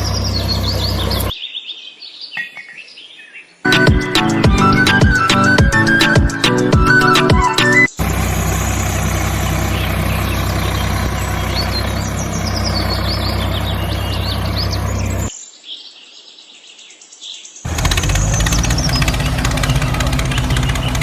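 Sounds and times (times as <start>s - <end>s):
tractor engine idling: 0.0s - 1.3s, 7.9s - 15.3s, 17.7s - 21.0s
birds chirping: 0.0s - 21.0s.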